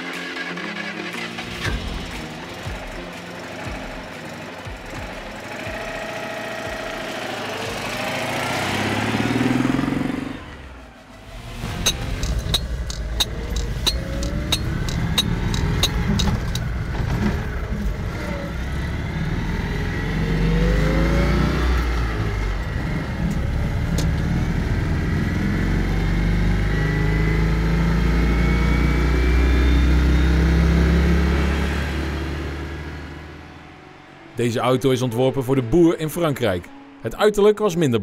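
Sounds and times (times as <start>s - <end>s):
car engine accelerating: 0.0s - 34.4s
sharp evenly spaced clicks: 11.7s - 16.7s.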